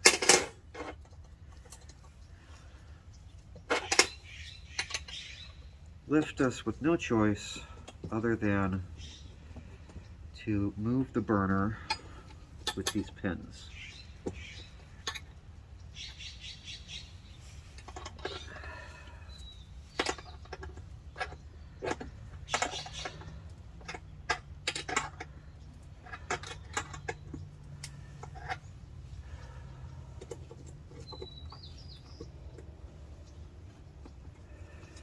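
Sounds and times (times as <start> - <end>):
clicks and rattles on metal burner: 0.0 - 2.0, 19.9 - 28.7
low steady hum: 0.0 - 35.0.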